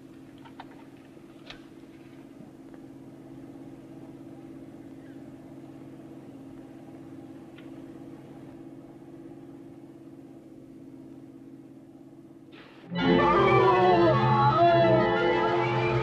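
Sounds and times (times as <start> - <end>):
car engine droning: 0.0 - 16.0.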